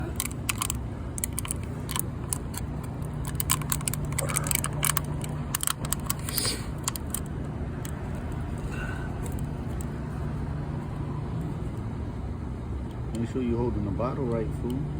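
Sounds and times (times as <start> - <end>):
small metal parts clicking and jingling: 0.0 - 8.3
steady low hum: 0.0 - 14.9.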